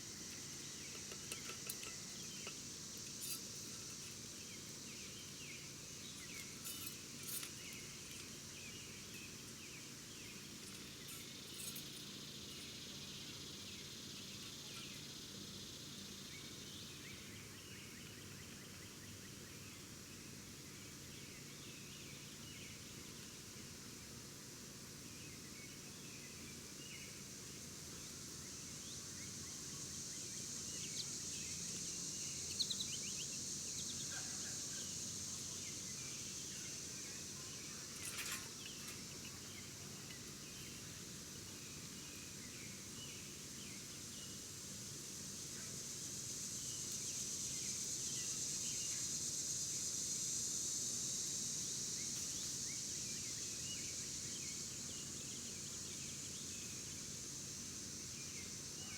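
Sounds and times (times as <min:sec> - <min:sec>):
brief rustle: 0:38.0 - 0:39.1.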